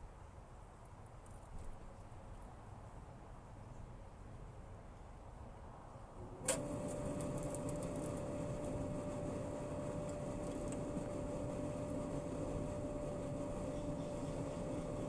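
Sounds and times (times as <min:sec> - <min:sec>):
dryer hum: 0:06.4 - 0:15.0.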